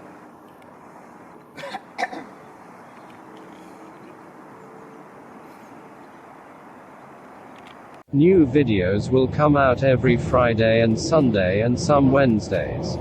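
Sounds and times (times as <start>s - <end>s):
faint hum: 0.0s - 13.0s
person clearing throat: 1.6s - 2.4s.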